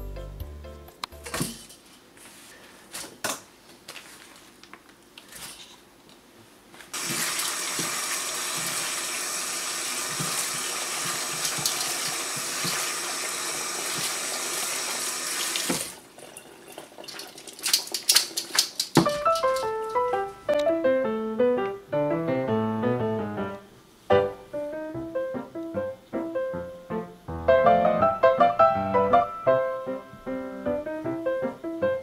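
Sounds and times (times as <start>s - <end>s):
tap water running into colander: 7.0s - 19.7s.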